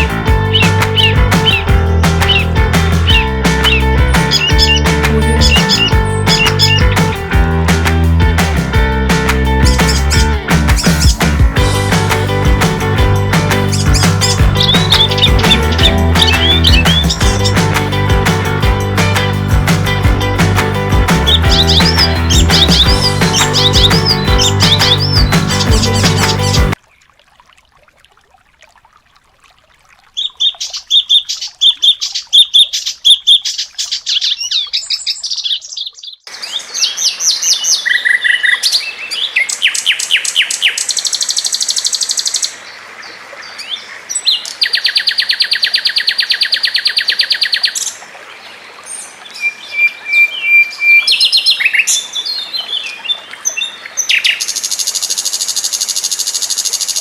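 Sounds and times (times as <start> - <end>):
songbird chirping song: 0.0 - 7.1, 13.5 - 18.0, 19.0 - 26.8
bird chattering phrases: 3.1 - 6.9
rapid buzzing trills: 9.2 - 26.8.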